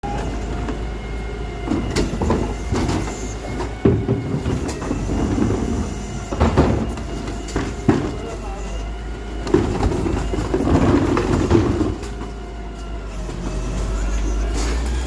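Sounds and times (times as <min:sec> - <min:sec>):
garbage truck engine rumble: 0:00.0 - 0:15.0
metal clanks and knocks: 0:01.7 - 0:08.4, 0:09.4 - 0:12.4.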